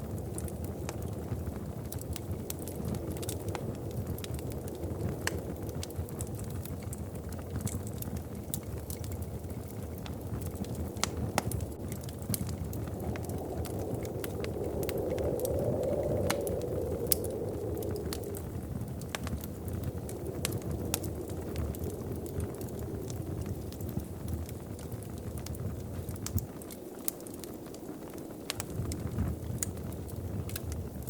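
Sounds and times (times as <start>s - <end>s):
wood fire crackling: 0.0s - 31.0s
low rushing swell: 12.5s - 23.9s.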